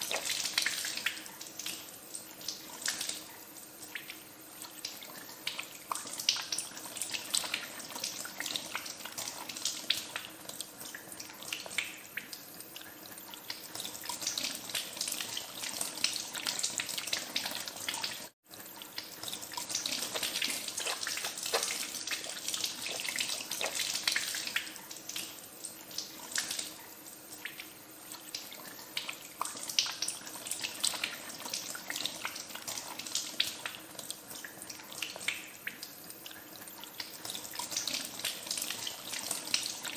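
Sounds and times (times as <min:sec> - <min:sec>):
hands washing under water: 0:19.2 - 0:25.3.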